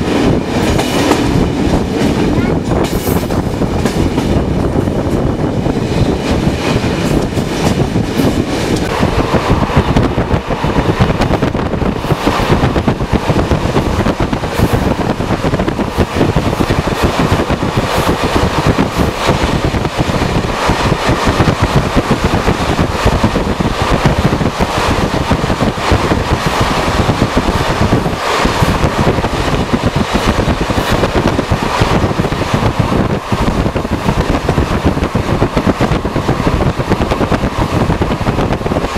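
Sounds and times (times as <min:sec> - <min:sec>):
train wheels rumbling on track: 0:00.0 - 0:38.9.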